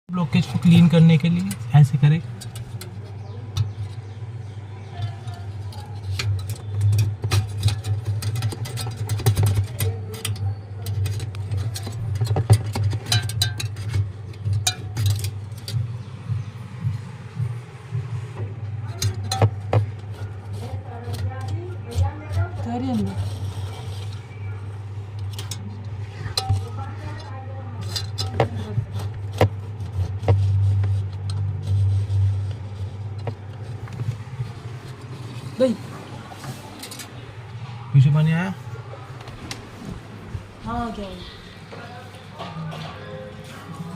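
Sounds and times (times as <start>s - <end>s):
steady low hum: 0.1s - 43.9s
clicks and knocks of hand work: 0.4s - 16.0s.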